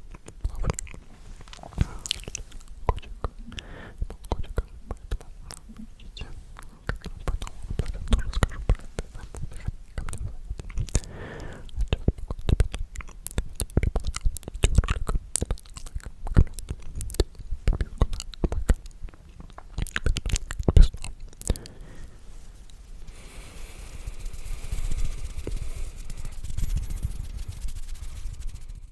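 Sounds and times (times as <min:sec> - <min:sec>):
wet mouth clicks and smacks: 0:00.0 - 0:23.2, 0:24.1 - 0:28.7
breathy whisper: 0:00.4 - 0:12.2, 0:20.6 - 0:28.9.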